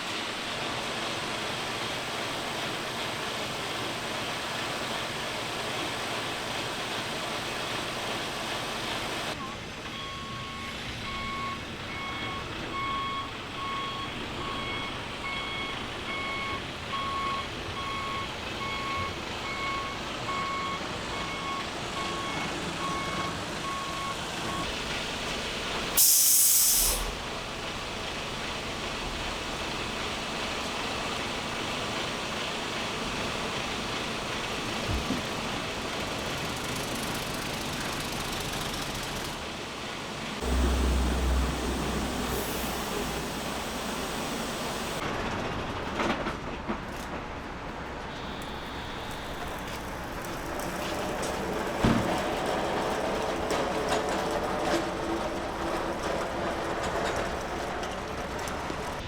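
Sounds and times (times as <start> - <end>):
diesel engine running: 0.0 - 45.6, 47.8 - 59.0
truck reversing alarm beeping: 9.2 - 31.2, 40.4 - 45.0, 48.1 - 52.8
air brakes hissing: 25.1 - 28.8, 40.4 - 45.0.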